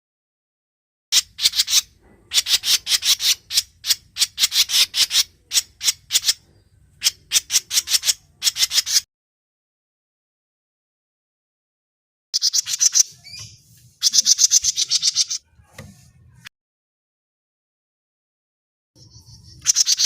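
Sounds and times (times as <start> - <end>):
bird rasping chattering calls: 1.2 - 9.1, 12.4 - 15.5, 19.0 - 20.0.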